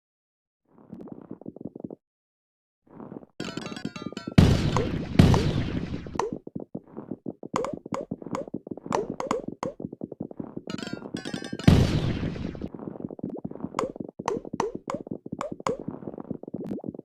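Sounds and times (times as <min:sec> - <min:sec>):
marbles clattering down a track: 0:03.4 - 0:04.4, 0:10.7 - 0:11.7.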